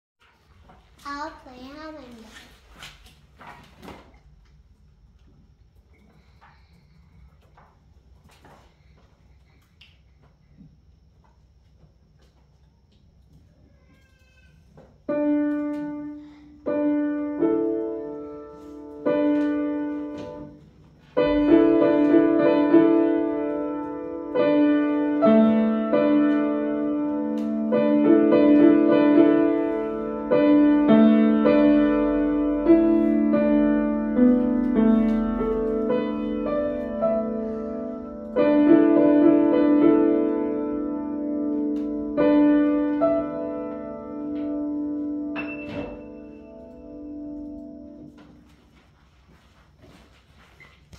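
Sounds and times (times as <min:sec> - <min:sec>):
piano piece: 0:15.1 - 0:48.6.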